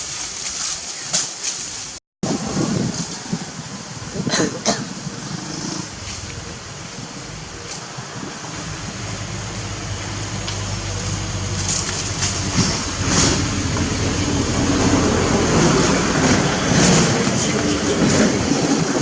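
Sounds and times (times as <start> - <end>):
vehicle engine approaching: 5.4 - 19.0.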